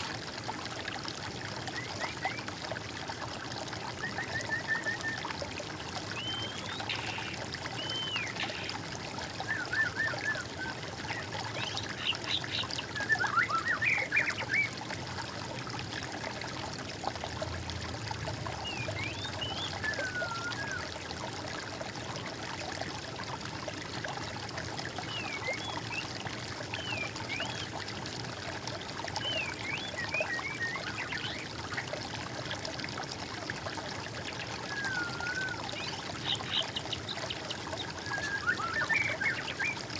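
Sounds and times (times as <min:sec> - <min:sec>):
trickle of running water: 0:00.0 - 0:39.9
birds calling and singing: 0:06.1 - 0:08.8, 0:09.4 - 0:14.8, 0:34.2 - 0:39.9.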